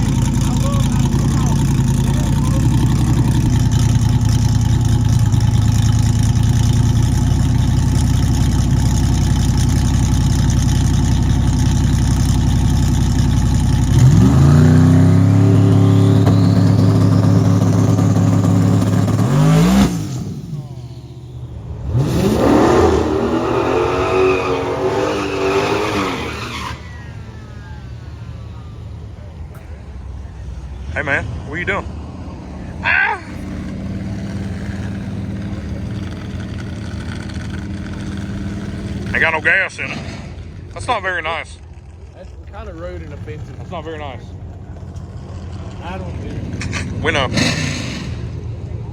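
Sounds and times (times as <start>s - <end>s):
car engine revving: 0.0s - 48.9s.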